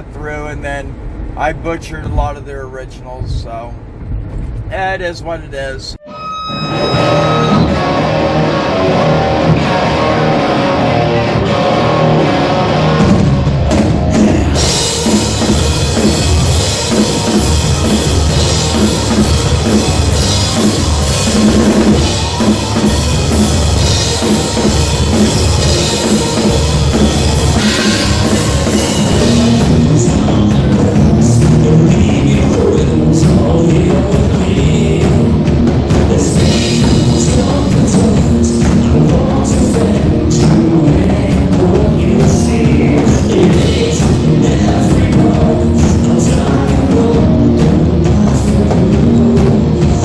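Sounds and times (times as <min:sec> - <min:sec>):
electric guitar: 0:06.0 - 0:50.0
live rock band playing: 0:06.0 - 0:50.0
drum kit: 0:06.1 - 0:50.0
crashing cymbals: 0:11.8 - 0:30.7.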